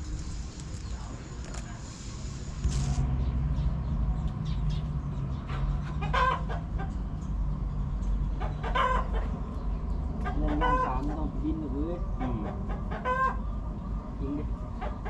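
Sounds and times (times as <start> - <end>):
steady low rumble: 0.0 - 14.8
chickens clucking: 3.5 - 15.0.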